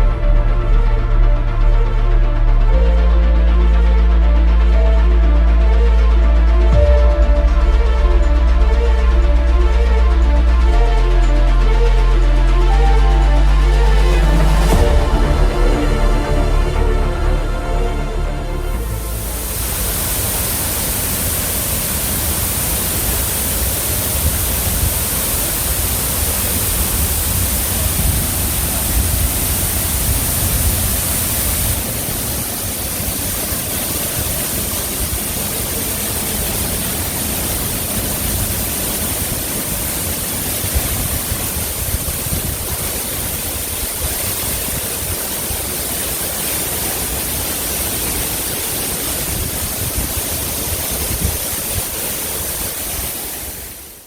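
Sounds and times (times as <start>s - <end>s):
heavy low rumble: 0.0s - 43.4s
waterfall rushing: 0.0s - 54.0s.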